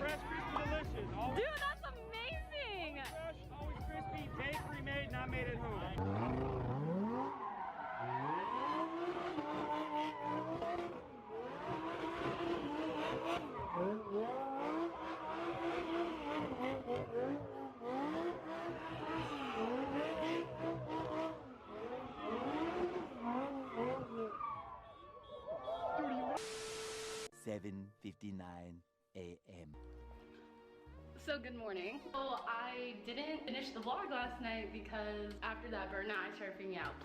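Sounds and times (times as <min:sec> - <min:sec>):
engine revving: 0:03.8 - 0:24.8.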